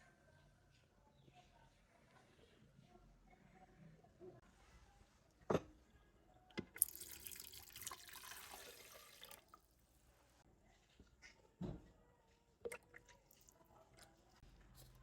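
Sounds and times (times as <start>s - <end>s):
water running: 6.8s - 9.6s.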